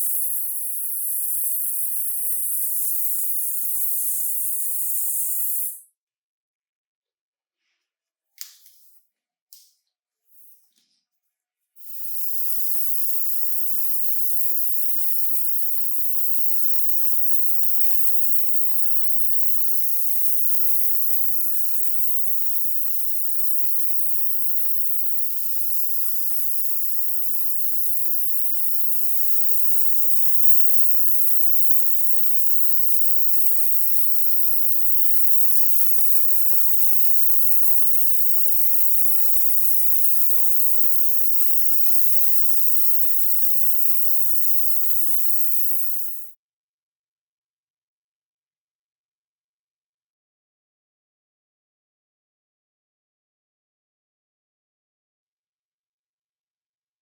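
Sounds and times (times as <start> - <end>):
spray nozzle hissing: 0.0 - 5.8, 11.8 - 46.3.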